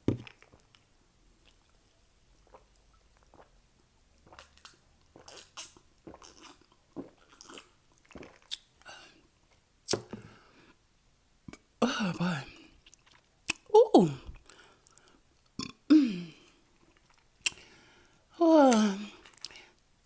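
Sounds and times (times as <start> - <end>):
chewing crunchy chips: 4.3 - 8.7.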